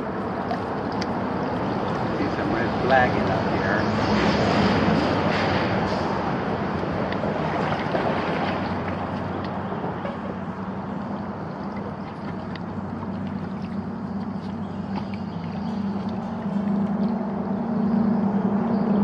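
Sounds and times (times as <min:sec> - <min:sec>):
faint ticks and splashes: 0:00.0 - 0:05.6, 0:06.6 - 0:18.9
creek current rushing: 0:00.8 - 0:17.6
low steady hum: 0:06.0 - 0:19.0.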